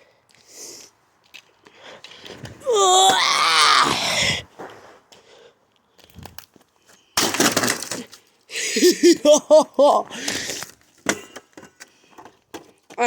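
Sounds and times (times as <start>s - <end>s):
vacuum cleaners crashing and breaking: 7.2s - 8.2s.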